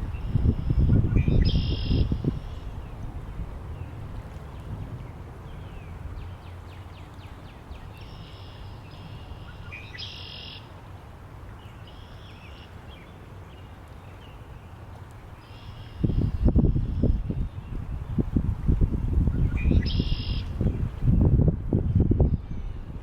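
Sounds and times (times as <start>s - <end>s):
wind gust buffeting microphone: 0.0s - 6.5s, 16.0s - 23.0s
low wind rumble: 0.0s - 11.9s, 12.8s - 23.0s
small birds singing: 19.3s - 21.2s.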